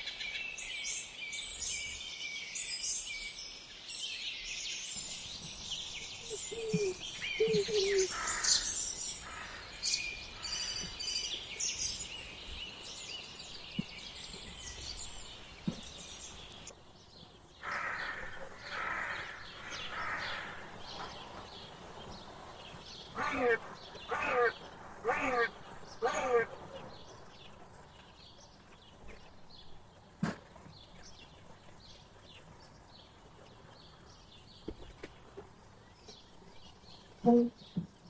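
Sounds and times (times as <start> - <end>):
small birds chirping: 0.0 - 16.7
slow low bird calls: 4.3 - 16.7.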